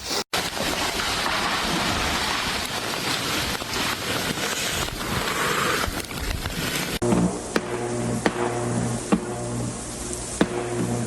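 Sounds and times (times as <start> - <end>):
wind hissing through icy trees: 0.0 - 11.0
tree limbs cracking: 0.4 - 8.6
background music: 7.0 - 11.0.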